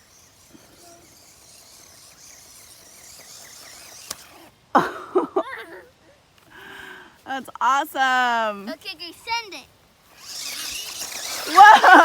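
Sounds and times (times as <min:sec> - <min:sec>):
insect hiss and chirps: 0:00.0 - 0:04.6, 0:09.0 - 0:12.0
person crying out or laughing: 0:11.4 - 0:12.0.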